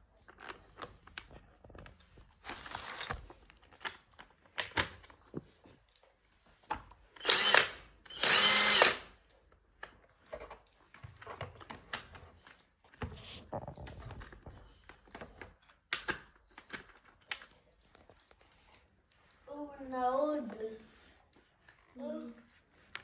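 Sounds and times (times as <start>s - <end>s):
impact wrench motor whining: 7.2s - 9.2s.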